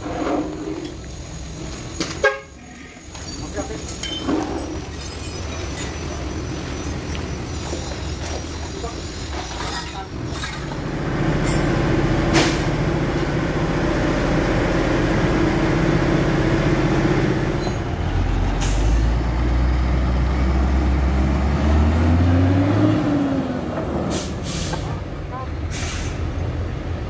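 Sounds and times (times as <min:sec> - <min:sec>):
air brake hisses: 0:24.1 - 0:24.9, 0:25.7 - 0:26.3.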